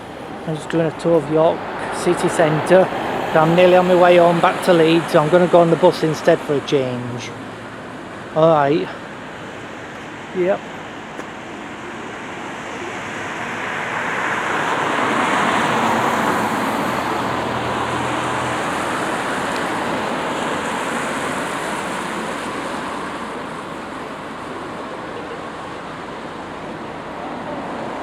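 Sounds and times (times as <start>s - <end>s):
vehicle passing by: 0.0s - 9.5s, 12.5s - 28.0s.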